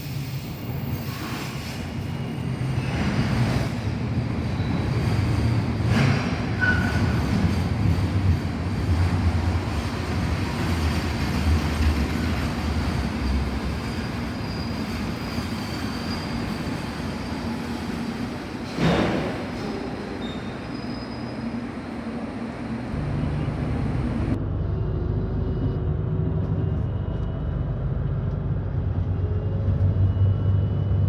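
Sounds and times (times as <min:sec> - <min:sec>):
freight train rumbling: 0:00.0 - 0:31.0
faint high wheel squeal: 0:04.4 - 0:07.3, 0:13.3 - 0:21.8.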